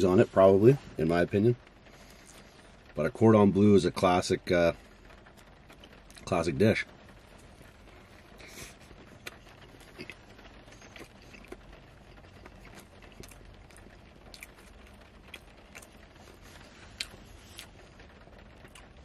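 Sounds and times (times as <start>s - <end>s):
low steady hum: 0.0s - 19.0s
chewing with wet mouth clicks: 9.1s - 17.8s.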